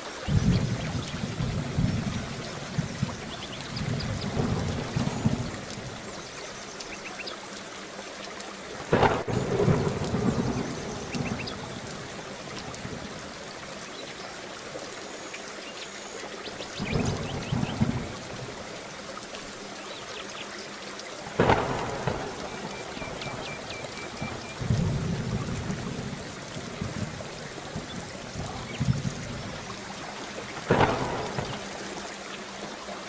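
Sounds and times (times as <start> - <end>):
steady rain: 0.0 - 33.0
thunder rumbling: 0.2 - 6.2, 8.9 - 13.5, 16.7 - 18.8, 21.3 - 32.1
sharp thunderclap: 0.3 - 6.0, 8.9 - 12.1, 16.8 - 18.5, 21.4 - 29.8, 30.6 - 31.8.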